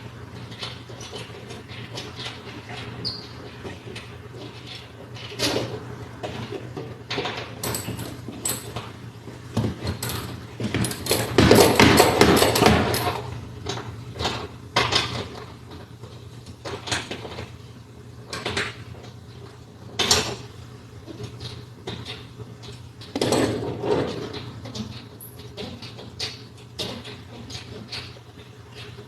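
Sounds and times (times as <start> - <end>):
tools and parts clattering: 7.1 - 8.9, 9.9 - 13.3, 23.1 - 28.1.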